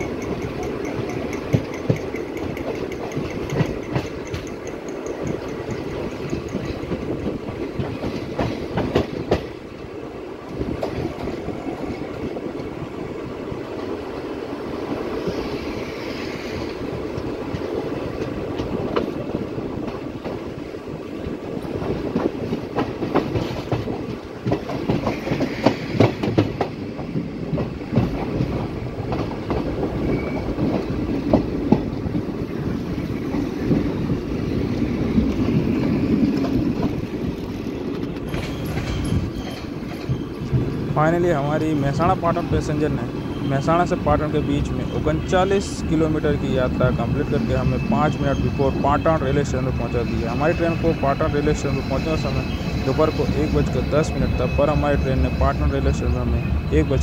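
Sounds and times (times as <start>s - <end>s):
wheels clattering over rail joints: 0.0s - 9.8s, 16.7s - 44.0s
train rumbling on rails: 0.0s - 57.0s.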